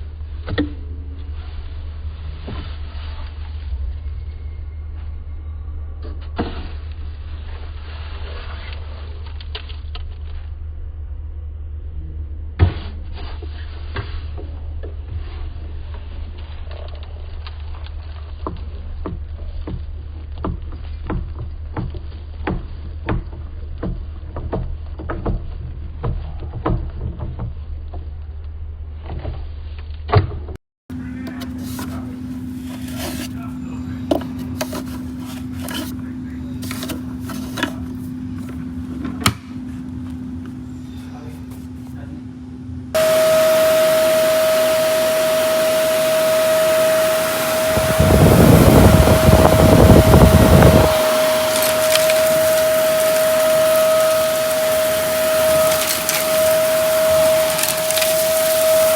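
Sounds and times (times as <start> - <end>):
vacuum cleaner humming: 31.4 - 33.5, 43.0 - 58.9
rough rattling rumble: 47.2 - 58.9
debris clicks and crackles: 50.9 - 58.9.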